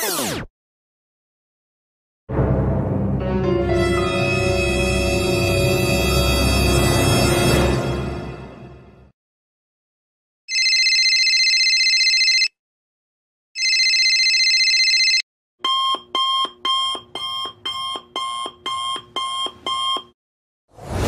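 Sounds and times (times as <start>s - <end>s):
telephone ringing: 10.5s - 12.5s, 13.6s - 20.0s
alarm clock beeping: 13.6s - 20.1s
swoosh: 20.8s - 21.0s.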